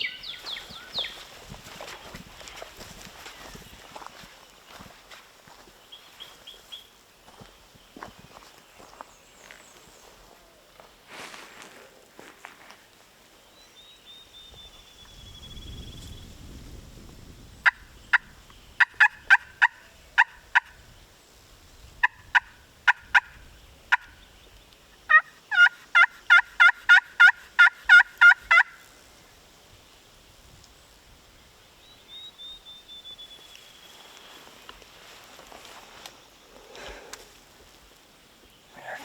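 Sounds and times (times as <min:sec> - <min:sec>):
turkey clucks: 0:17.6 - 0:20.7, 0:25.1 - 0:28.8
turkey rapid yelps: 0:25.1 - 0:28.8.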